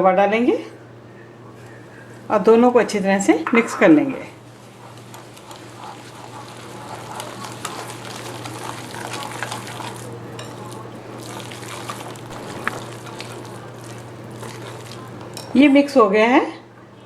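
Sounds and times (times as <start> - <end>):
spoon stirring thick batter: 3.5 - 15.8.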